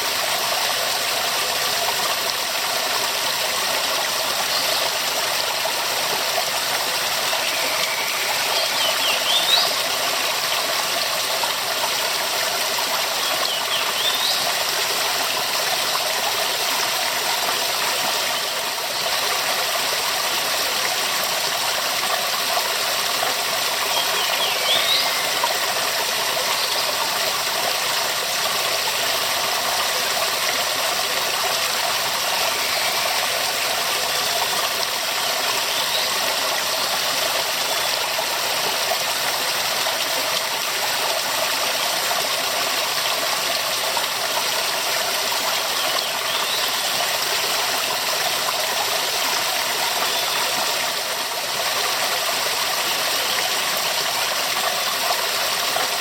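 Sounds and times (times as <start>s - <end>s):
waterfall rushing: 4.0s - 10.9s, 23.6s - 27.8s.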